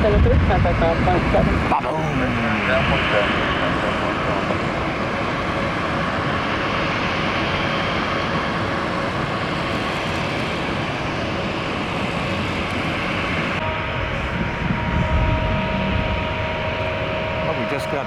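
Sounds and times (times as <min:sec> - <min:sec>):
jet engines running: 0:00.0 - 0:18.0.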